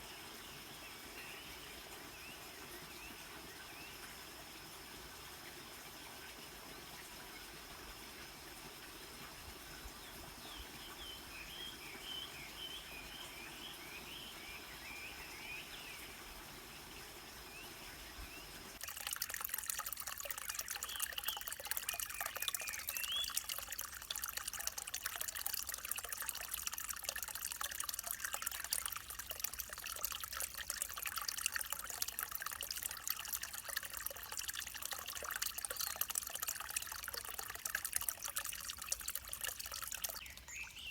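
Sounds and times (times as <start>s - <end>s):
water splashing over stones: 18.8s - 40.5s
river water flowing: 18.8s - 40.6s
bird chirping: 20.1s - 24.8s, 39.4s - 40.9s.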